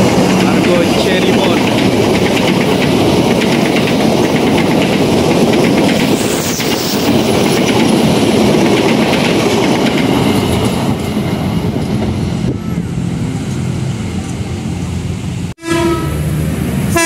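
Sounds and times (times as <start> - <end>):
clatter over rail joints: 0.0 - 12.1
rumble of train wheels on rails: 0.0 - 17.0.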